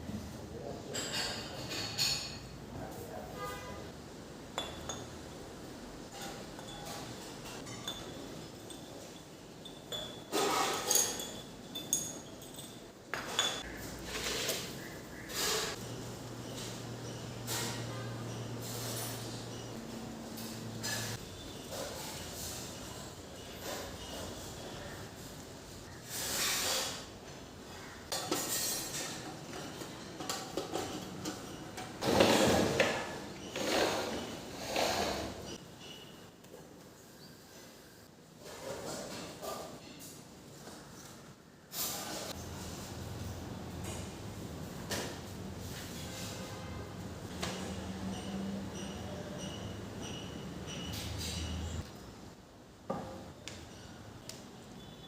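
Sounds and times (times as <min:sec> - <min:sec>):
clinks of metal or glass: 0:04.5 - 0:05.5, 0:06.1 - 0:13.7, 0:48.0 - 0:51.8.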